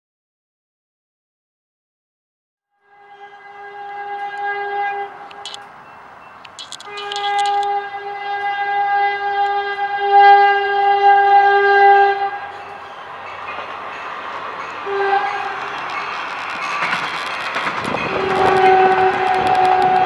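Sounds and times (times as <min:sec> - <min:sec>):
train horn blasts: 0:02.8 - 0:05.6, 0:06.9 - 0:12.9, 0:14.8 - 0:17.1, 0:17.7 - 0:20.0
train rumbling on rails: 0:02.9 - 0:20.0
sharp clicks: 0:05.1 - 0:05.7, 0:06.4 - 0:07.8, 0:15.7 - 0:20.0.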